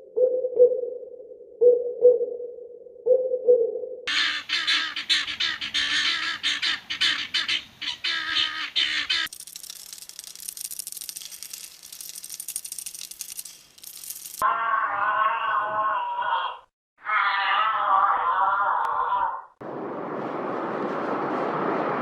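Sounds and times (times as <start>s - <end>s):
flock of birds squawking: 4.1s - 9.3s.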